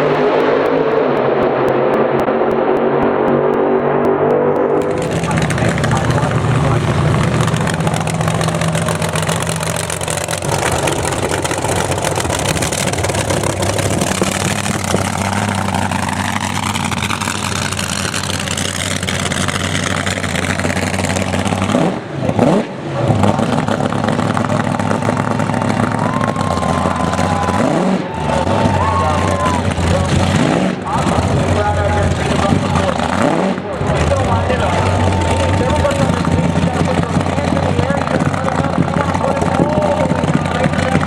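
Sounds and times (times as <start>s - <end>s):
car engines revving: 0.0s - 41.0s.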